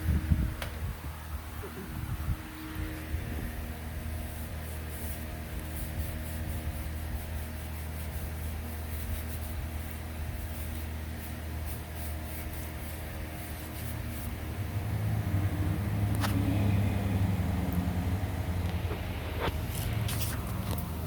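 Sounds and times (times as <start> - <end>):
two-stroke engine running: 12.6 - 21.0.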